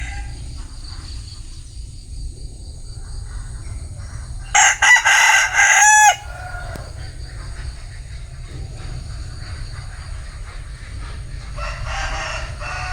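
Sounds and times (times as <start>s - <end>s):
rooster crowing: 0.0s - 0.4s, 4.5s - 7.0s, 11.6s - 12.9s.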